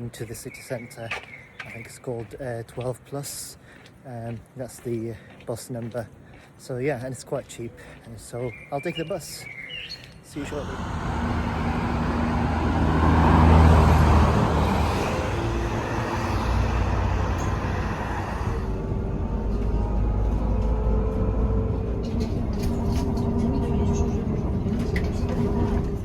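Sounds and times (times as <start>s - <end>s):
bus engine rumbling: 10.2s - 26.0s.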